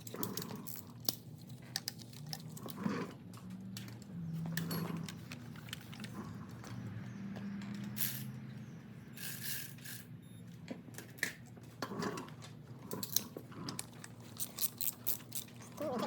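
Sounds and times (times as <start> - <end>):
metallic clicks and clinks: 12.9 - 16.0.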